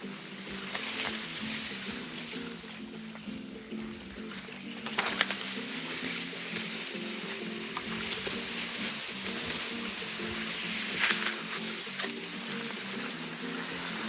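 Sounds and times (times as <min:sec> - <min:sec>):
food sizzling in a pan: 0:00.0 - 0:03.0, 0:04.6 - 0:14.0
background music with sustained notes: 0:00.0 - 0:14.0.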